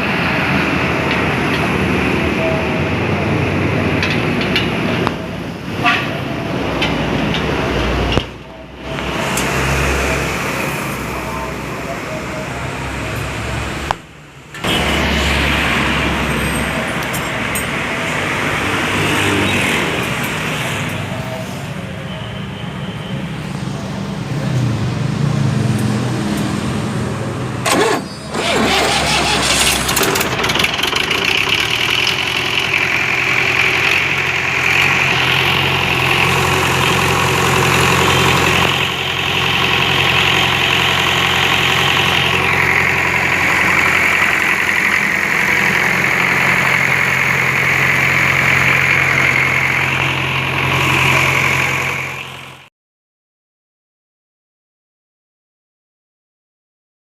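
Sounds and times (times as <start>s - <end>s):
diesel engine running: 0.0s - 22.0s, 23.5s - 52.7s
engine clatter: 27.6s - 52.6s.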